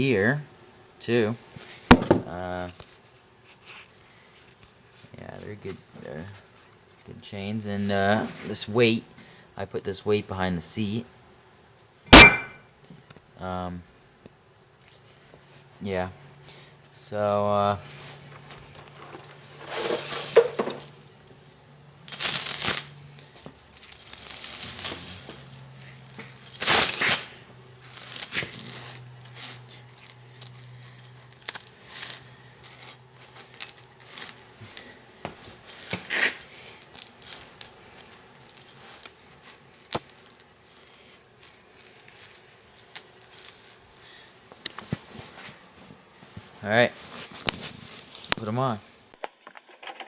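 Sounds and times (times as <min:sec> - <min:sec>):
faint steady hum: 0:00.0 - 0:46.5
metal chains clinking and rattling: 0:12.1 - 0:12.6, 0:18.3 - 0:43.9, 0:49.2 - 0:50.0.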